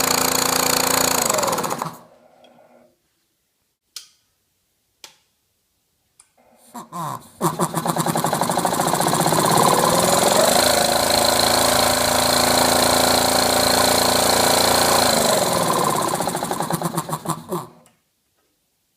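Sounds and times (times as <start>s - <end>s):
air compressor running: 0.0s - 2.2s, 7.4s - 17.8s.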